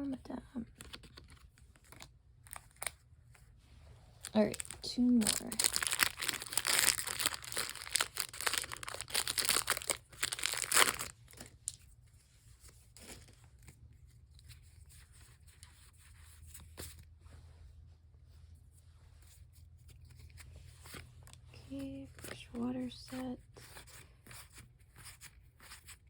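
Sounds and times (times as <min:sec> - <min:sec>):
faint rustling of cards: 0:00.3 - 0:26.0
foil wrapper tearing and crinkling: 0:04.2 - 0:11.8.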